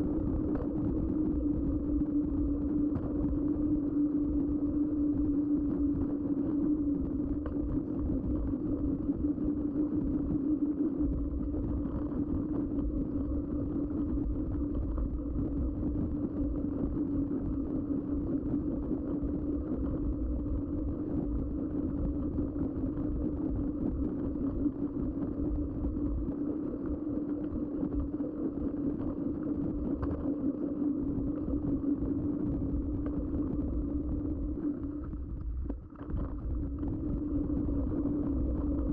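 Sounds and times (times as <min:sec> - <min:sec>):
wind rumble on microphone: 0:00.0 - 0:38.9.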